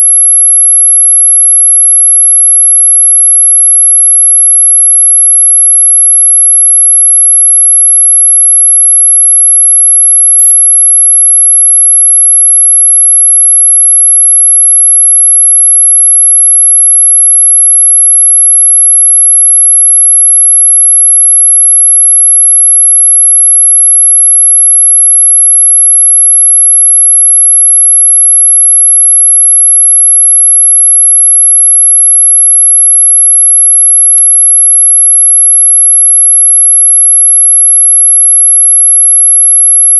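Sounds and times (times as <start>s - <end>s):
brief click: 10.4s - 10.6s.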